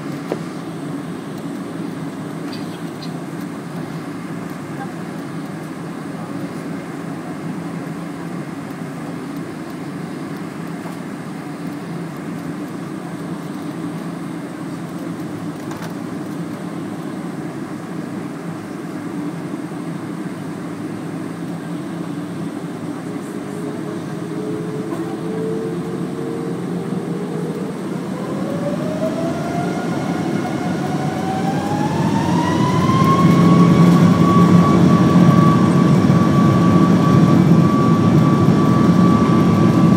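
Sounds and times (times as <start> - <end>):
airplane cabin engine rumble: 0.0 - 39.9
jet engine whine rising: 17.2 - 39.9.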